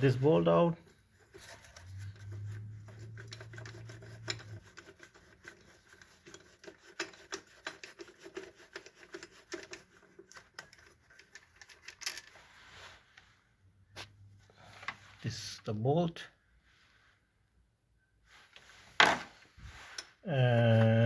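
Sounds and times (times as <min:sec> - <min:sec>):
hand tools and metal parts clicking: 0:01.2 - 0:12.5.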